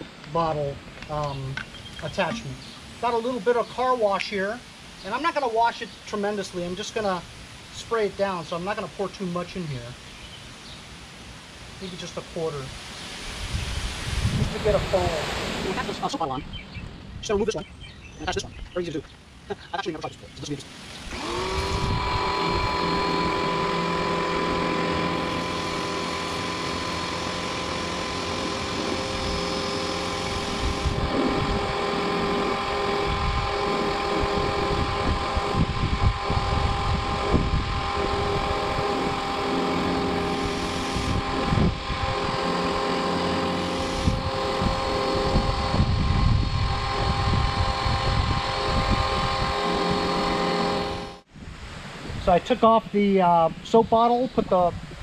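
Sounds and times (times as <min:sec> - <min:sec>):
pressure washer motor whine: 0:00.0 - 0:07.2, 0:11.8 - 0:16.4, 0:19.6 - 0:51.3
water spray hissing on car: 0:11.4 - 0:16.2.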